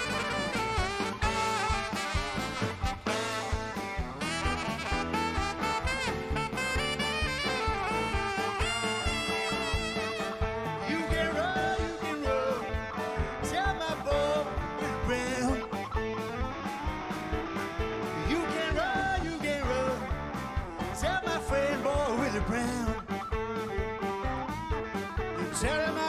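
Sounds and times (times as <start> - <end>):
held accompanying note: 0.0 - 10.7
blues guitar solo with bent notes: 0.0 - 26.0
steady drum beat: 0.0 - 26.0.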